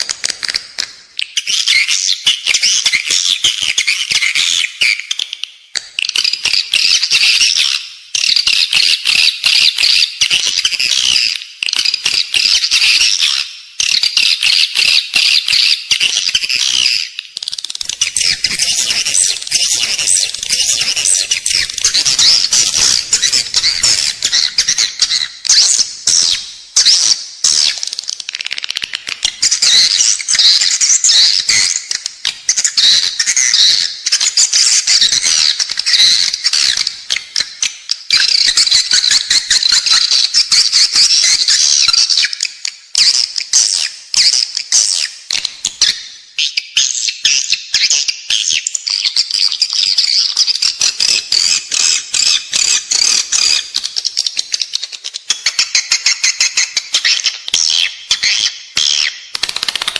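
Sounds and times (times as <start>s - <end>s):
swiftlets chirping and twittering: 17.8s - 27.9s, 49.3s - 59.9s
fast clicking: 59.3s - 59.9s.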